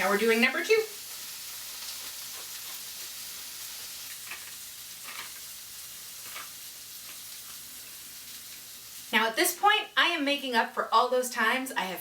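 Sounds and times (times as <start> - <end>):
chicken sizzling in a pan: 0.0 - 10.9.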